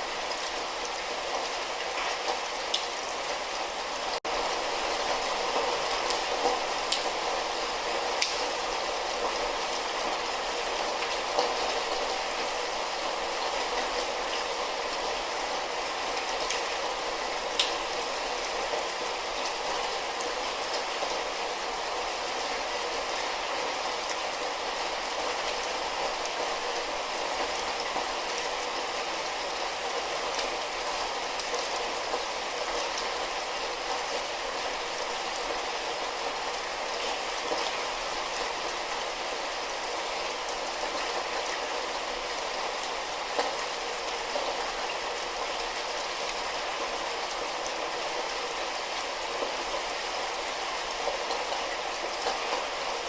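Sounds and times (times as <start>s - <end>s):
light rain hissing: 0.0s - 53.0s
raindrops ticking: 8.2s - 8.5s.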